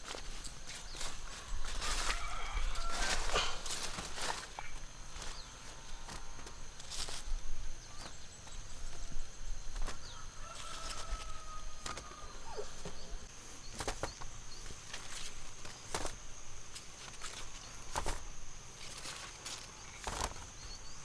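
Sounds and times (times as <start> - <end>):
steady high-pitched whine: 0.0 - 21.0
chickens clucking: 9.7 - 14.8.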